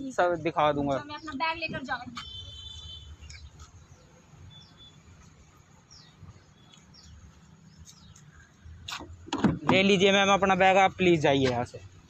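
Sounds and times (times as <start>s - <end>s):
faint bird chirps: 2.2s - 8.9s.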